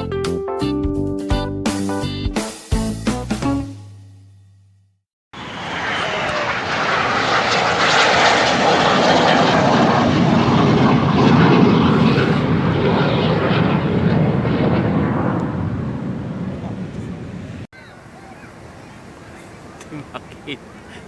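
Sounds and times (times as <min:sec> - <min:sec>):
aircraft flying past: 0:05.4 - 0:21.0.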